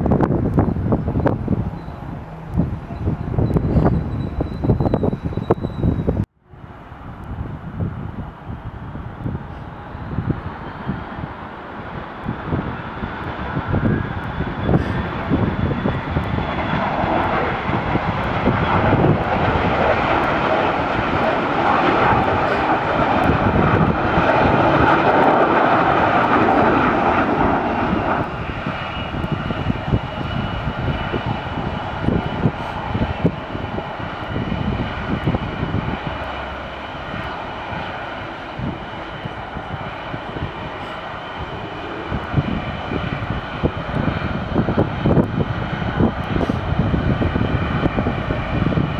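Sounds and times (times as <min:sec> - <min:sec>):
airplane engines rushing: 0:00.0 - 0:48.9.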